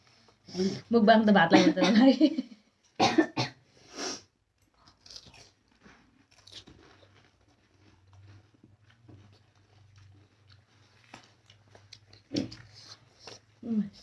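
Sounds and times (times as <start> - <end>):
chewing with crackles: 4.6 - 14.0
crisp shells crunching: 4.8 - 12.3.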